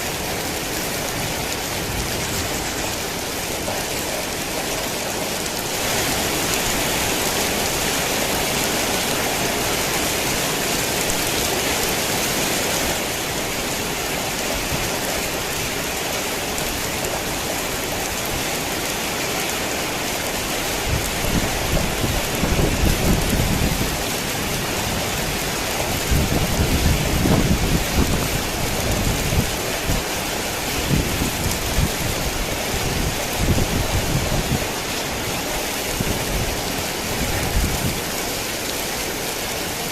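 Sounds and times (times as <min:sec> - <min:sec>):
heavy rain falling: 0:00.0 - 0:39.9
thunder rumbling: 0:20.8 - 0:34.8.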